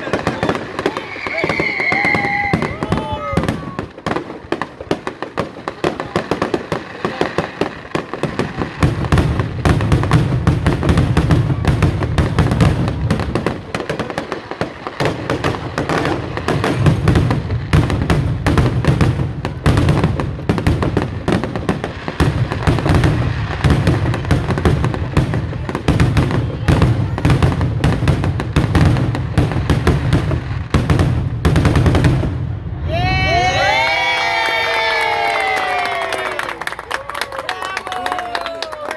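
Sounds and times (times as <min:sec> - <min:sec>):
fireworks crackling and popping: 0:00.0 - 0:38.9.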